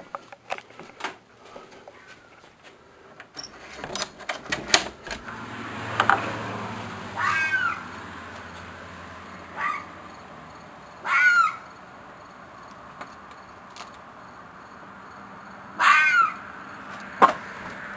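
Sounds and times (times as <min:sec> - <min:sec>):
door being unlatched and opened: 0:03.4 - 0:05.3
screeching animal call: 0:07.1 - 0:08.0, 0:09.4 - 0:10.0, 0:11.0 - 0:11.8, 0:15.8 - 0:16.6.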